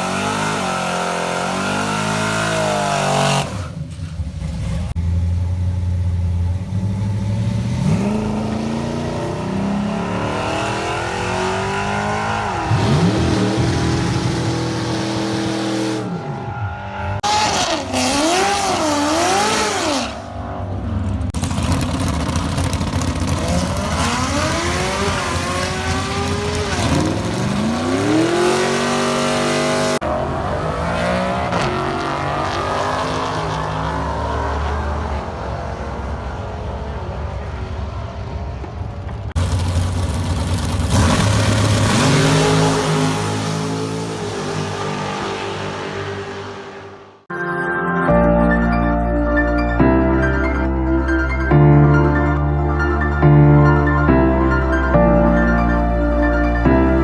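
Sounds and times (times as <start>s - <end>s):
racing engines revving: 0.0s - 5.4s, 6.4s - 47.3s.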